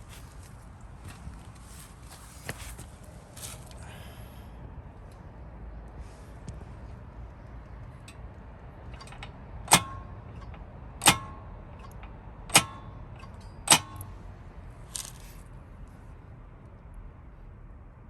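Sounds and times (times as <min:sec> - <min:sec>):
soft rattle: 0:07.9 - 0:14.2, 0:14.8 - 0:15.5
sharp metallic clanks: 0:07.9 - 0:14.3, 0:14.9 - 0:15.4.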